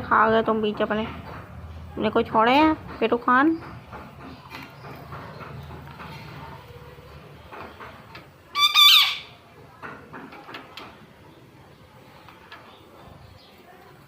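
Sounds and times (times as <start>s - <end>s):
parakeet squawk: 8.6s - 9.4s.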